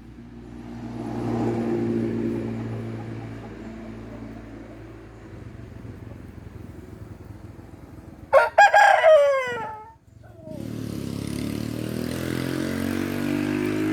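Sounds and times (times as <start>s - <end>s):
steady engine hum: 0.0s - 13.9s
rooster crowing: 8.3s - 10.0s.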